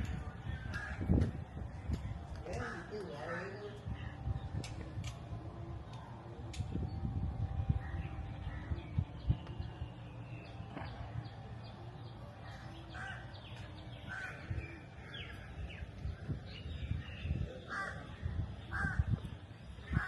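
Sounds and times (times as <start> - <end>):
bird harsh calls: 16.7 - 20.0.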